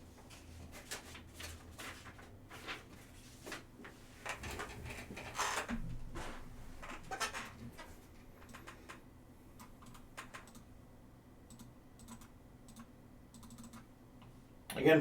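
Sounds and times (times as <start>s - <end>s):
typing on computer keyboard: 8.4s - 9.0s, 9.6s - 10.7s, 11.5s - 13.9s.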